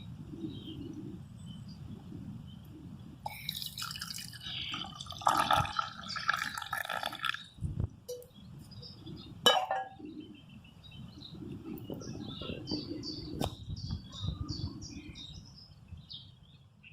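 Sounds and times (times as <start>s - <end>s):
liquid trickling: 3.3s - 7.5s.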